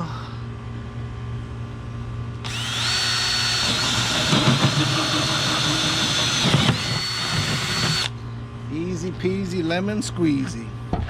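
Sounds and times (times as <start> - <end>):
power drill whining: 2.4 - 8.1
hole saw grinding plastic: 2.5 - 8.1.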